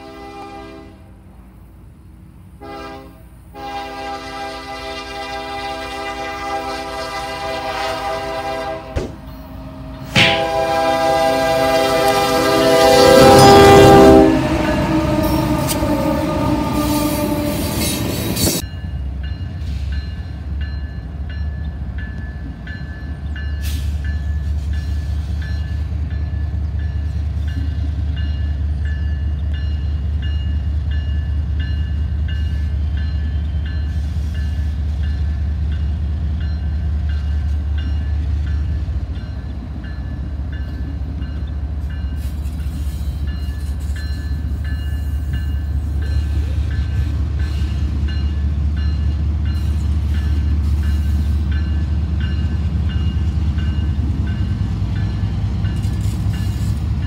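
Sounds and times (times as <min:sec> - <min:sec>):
locomotive air horn: 0:00.0 - 0:01.1, 0:02.6 - 0:18.6
freight train rumbling past: 0:00.0 - 0:57.0
crossing signal ringing: 0:07.9 - 0:56.7.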